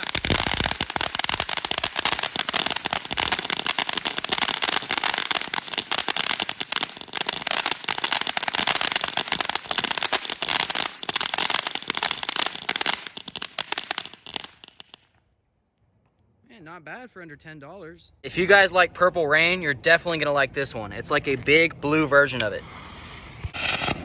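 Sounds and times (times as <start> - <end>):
firework fountain crackling: 0.0 - 15.1, 22.4 - 24.0.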